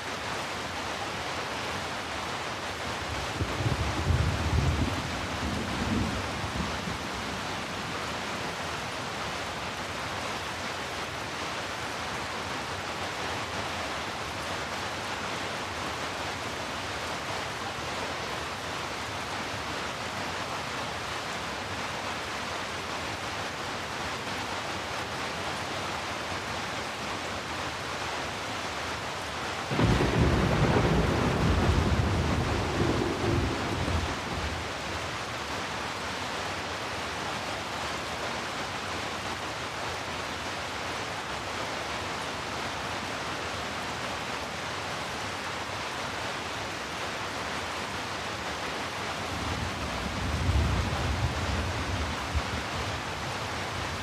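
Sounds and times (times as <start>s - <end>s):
steady rain falling: 0.0s - 54.0s
thunder rolling: 29.7s - 34.7s.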